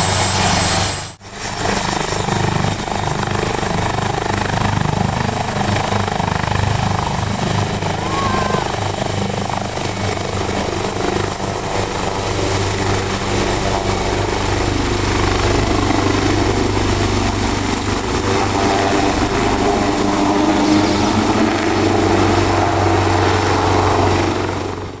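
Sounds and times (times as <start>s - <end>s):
thin high whine: 0.0s - 4.4s, 6.9s - 22.2s
helicopter taking off: 0.0s - 25.0s.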